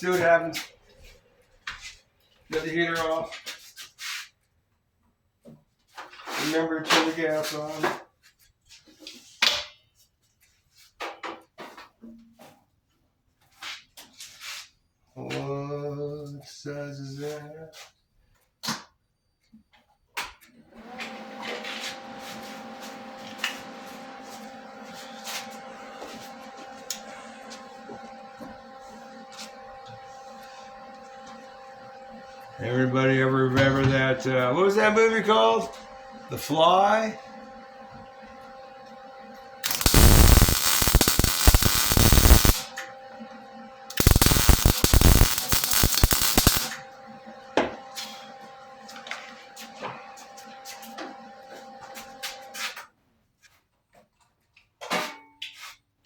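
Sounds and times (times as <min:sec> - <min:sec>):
small electric motor humming: 0:35.9 - 0:42.8, 0:43.9 - 0:47.2
welding crackling: 0:39.6 - 0:42.7, 0:43.9 - 0:46.8.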